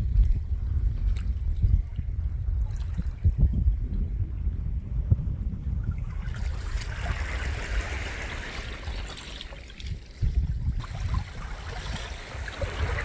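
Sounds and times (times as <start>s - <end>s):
wind rumble on microphone: 0.0s - 13.0s
water washing at shoreline: 5.8s - 13.0s.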